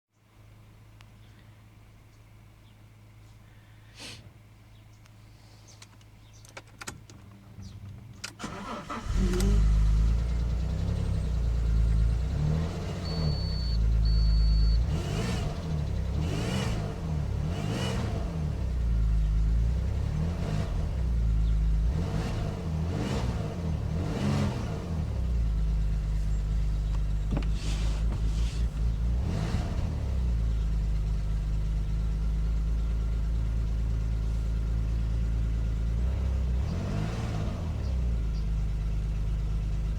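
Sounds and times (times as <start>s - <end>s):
car engine revving and idling: 7.3s - 39.9s
engine buzzing noise: 7.6s - 19.0s, 21.8s - 30.7s
starter motor cranking: 8.3s - 9.8s.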